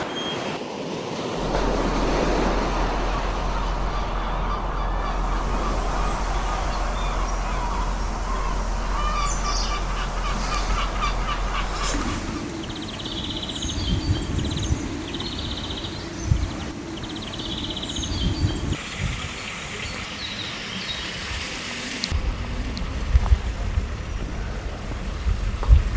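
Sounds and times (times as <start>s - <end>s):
steady outdoor rush: 0.0s - 25.9s
small birds chirping: 3.4s - 21.2s.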